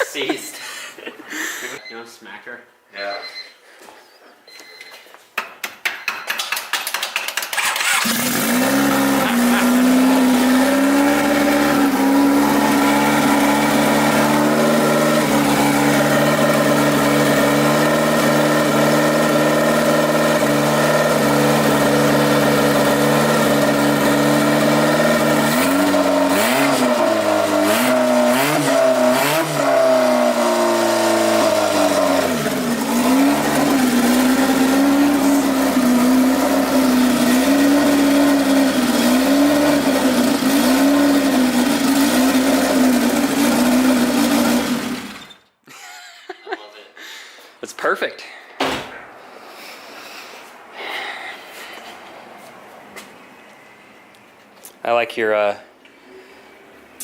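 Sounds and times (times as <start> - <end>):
car engine starting and idling: 6.5 - 45.3
engine revving: 7.5 - 45.2.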